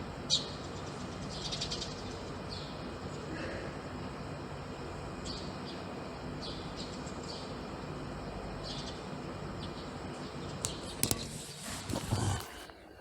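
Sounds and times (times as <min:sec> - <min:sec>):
small birds chirping: 0:00.2 - 0:03.3, 0:05.0 - 0:10.8.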